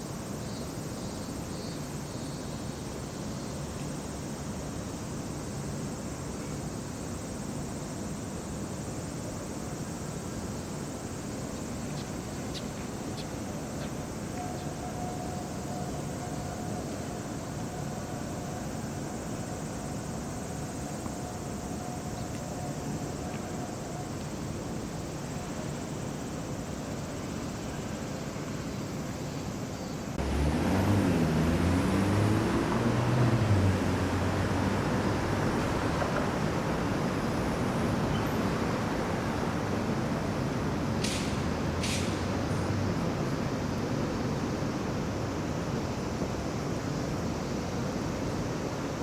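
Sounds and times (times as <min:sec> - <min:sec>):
traffic noise: 0:00.0 - 0:49.0
vehicle engines running: 0:30.1 - 0:45.6.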